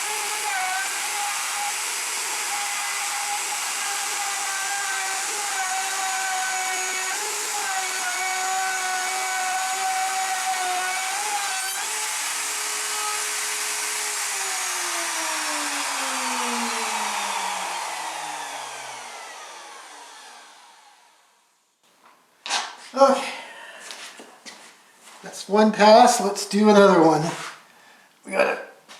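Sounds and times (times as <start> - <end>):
wood router motor whining: 0.0 - 21.5.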